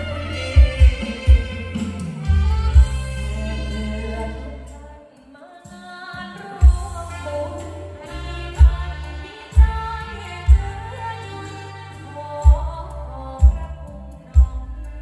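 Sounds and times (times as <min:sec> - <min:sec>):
deep bass hits: 0:00.0 - 0:03.9, 0:08.6 - 0:11.0
person singing: 0:00.0 - 0:15.0.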